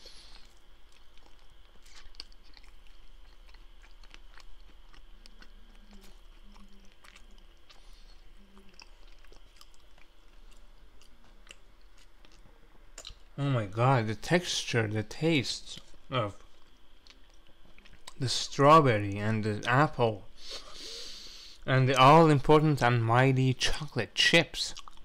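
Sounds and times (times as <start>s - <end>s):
person chewing: 0.0s - 13.4s, 15.8s - 18.2s, 24.7s - 25.0s
wet mouth clicks: 13.0s - 13.2s.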